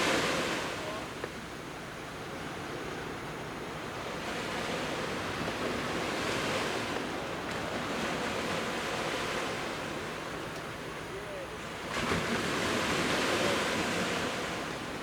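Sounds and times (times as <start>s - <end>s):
sea waves breaking: 4.1s - 15.0s.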